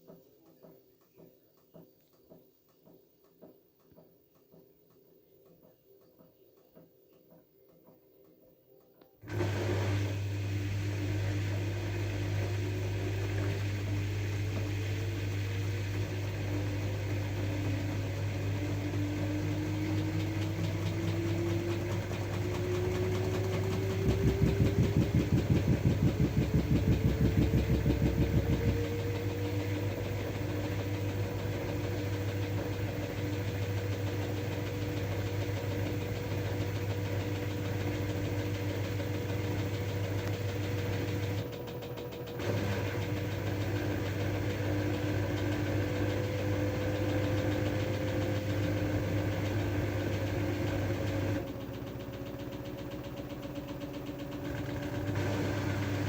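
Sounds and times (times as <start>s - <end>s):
washing machine motor humming: 9.2s - 56.0s
rising motor whine: 9.3s - 41.4s.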